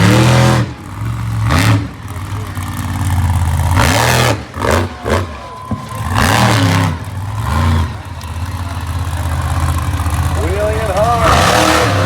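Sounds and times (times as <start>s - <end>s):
monster truck engine revving: 0.0s - 12.0s.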